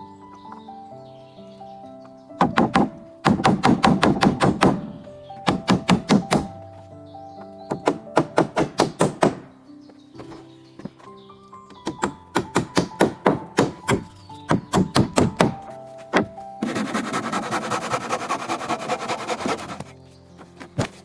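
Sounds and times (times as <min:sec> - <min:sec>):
background music: 0:00.0 - 0:21.0
sharp knocks on wood: 0:02.4 - 0:04.9, 0:05.5 - 0:06.6, 0:07.7 - 0:09.5, 0:11.7 - 0:16.3
rapid rasping: 0:16.6 - 0:20.0.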